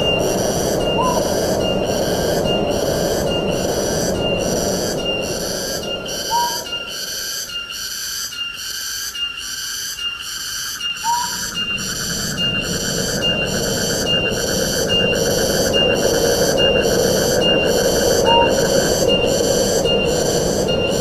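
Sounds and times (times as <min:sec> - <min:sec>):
wind rushing through trees: 0:00.0 - 0:08.6, 0:10.7 - 0:21.0
insect chorus pulsing: 0:00.0 - 0:21.0
rising whistled bird note: 0:00.9 - 0:01.8, 0:05.9 - 0:07.6, 0:10.9 - 0:14.3.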